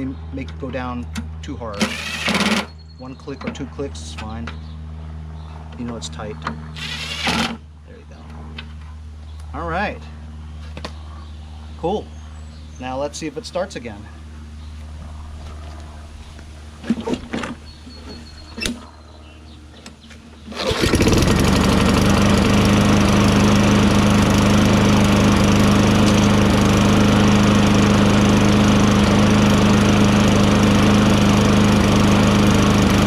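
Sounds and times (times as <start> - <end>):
lawn mower engine starting and running: 0.0 - 2.9, 6.4 - 7.7, 19.7 - 33.0.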